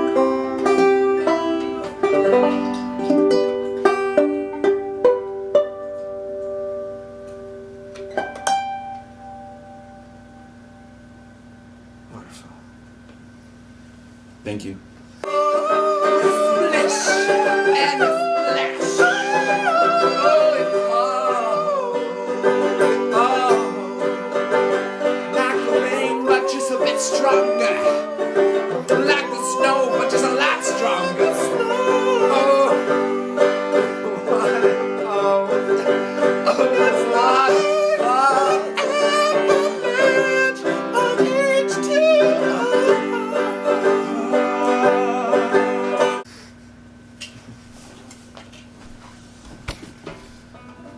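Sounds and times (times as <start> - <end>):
person singing: 0.0 - 3.3, 15.2 - 46.3
plucked strings: 0.0 - 11.4, 15.3 - 46.2.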